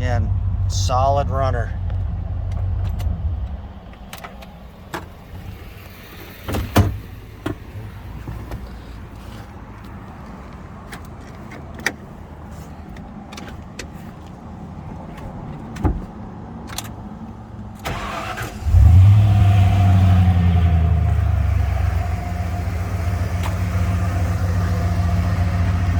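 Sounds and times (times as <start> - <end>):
car engine idling: 0.0 - 11.4, 16.9 - 25.9.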